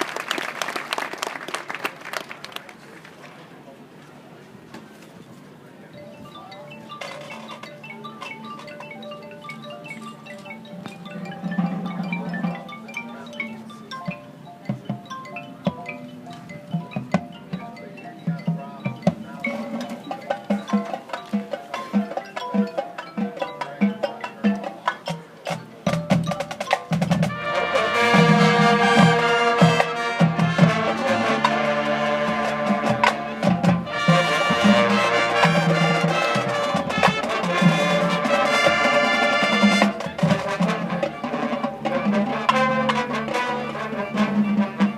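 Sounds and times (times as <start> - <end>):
mallet percussion: 5.8 - 44.9
drums: 6.2 - 44.9
marching band with brass: 7.0 - 7.7, 10.0 - 13.2, 16.6 - 44.9.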